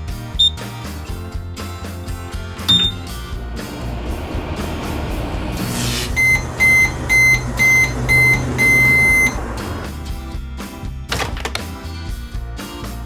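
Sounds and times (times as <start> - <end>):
longer beep: 2.7 - 3.0, 6.2 - 9.4
short high beeps: 2.7 - 3.0
toy microwave humming: 6.1 - 10.0.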